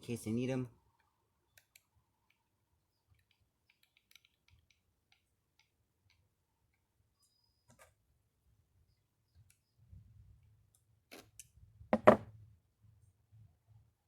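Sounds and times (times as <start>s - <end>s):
small metal tools clicking: 3.1s - 6.2s.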